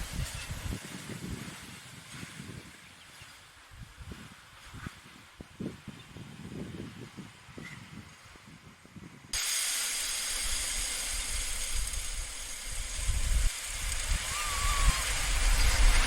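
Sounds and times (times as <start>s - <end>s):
steady hiss: 0.0s - 1.4s, 9.4s - 16.0s
wind rumbling on microphone: 0.0s - 9.4s, 10.3s - 16.0s
short bird call: 14.3s - 15.0s.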